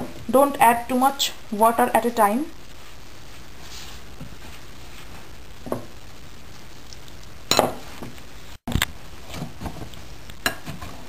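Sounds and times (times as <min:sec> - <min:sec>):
dough being mixed in bowl: 0:02.7 - 0:08.2
kitchenware knocks and clinks: 0:07.5 - 0:07.8.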